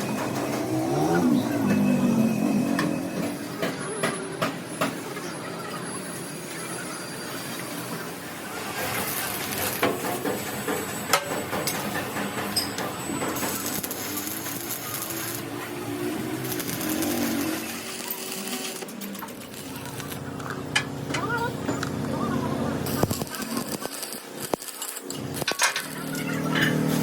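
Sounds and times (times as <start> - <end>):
metalworking hiss and rattle: 8.6 - 20.9.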